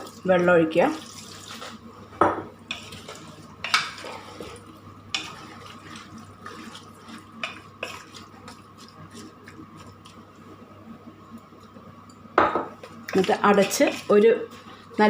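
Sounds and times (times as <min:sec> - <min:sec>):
water pouring into a pot: 0:00.8 - 0:01.8.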